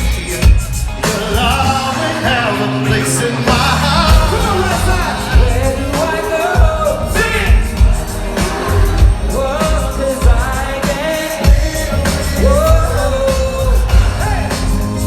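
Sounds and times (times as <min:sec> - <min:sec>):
live band with heavy bass beat: 0:00.0 - 0:15.0
person singing: 0:00.0 - 0:15.0.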